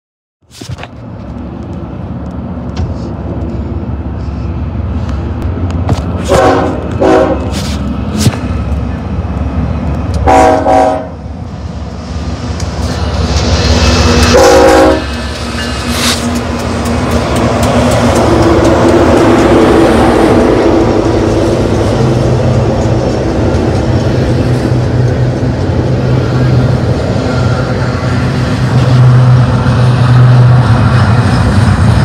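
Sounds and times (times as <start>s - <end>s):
diesel locomotive engines rumbling: 0.4s - 32.0s
train horn blasts: 6.2s - 7.8s, 10.2s - 11.2s, 14.2s - 15.2s
train wheels hissing on rails: 7.4s - 9.0s, 11.7s - 32.0s.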